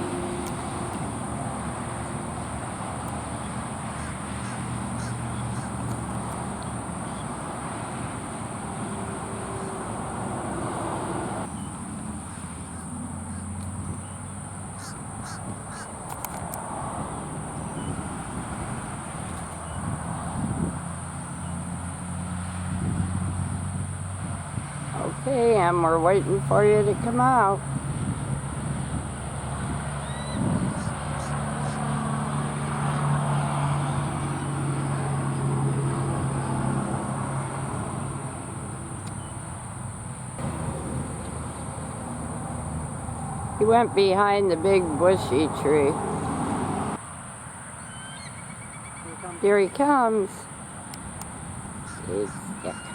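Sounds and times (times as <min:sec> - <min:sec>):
vehicle engine humming: 0:00.0 - 0:52.9
bird calls: 0:03.0 - 0:08.2, 0:11.5 - 0:16.2, 0:17.1 - 0:18.4, 0:30.0 - 0:32.0, 0:39.0 - 0:39.7, 0:47.8 - 0:50.1, 0:51.8 - 0:52.9.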